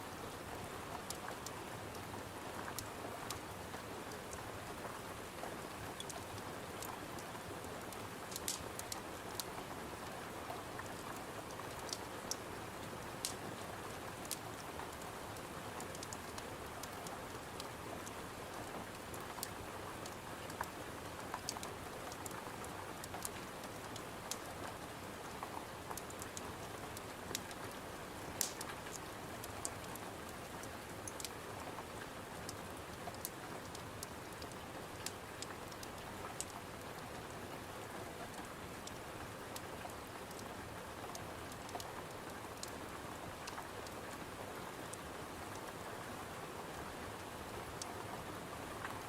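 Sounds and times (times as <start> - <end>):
rain on a window: 0.0 - 49.0
sharp ticks and pops: 5.9 - 9.5, 10.9 - 12.4, 13.2 - 13.4, 14.2 - 18.2, 18.9 - 24.8, 25.9 - 27.7, 28.3 - 31.4, 32.4 - 36.9, 42.6 - 42.8.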